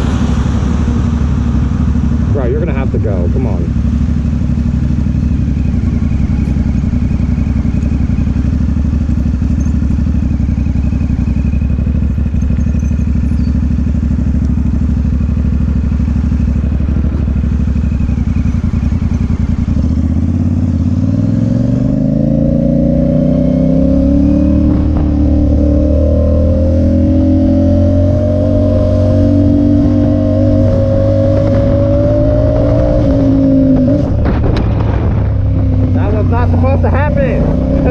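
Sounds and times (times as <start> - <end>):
motorcycle engine running: 0.0 - 37.9
wind noise on microphone: 27.9 - 36.2.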